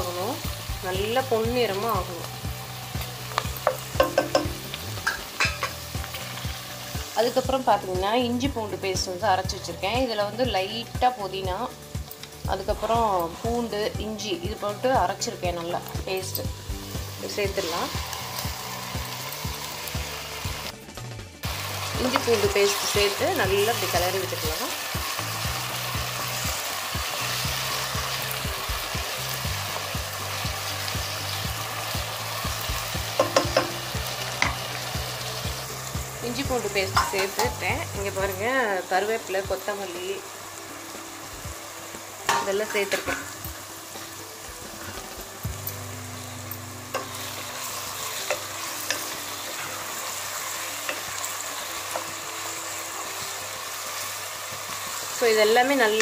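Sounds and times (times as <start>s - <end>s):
food sizzling in hot oil: 0.0s - 56.0s
spatula knocking against pan: 3.6s - 5.7s.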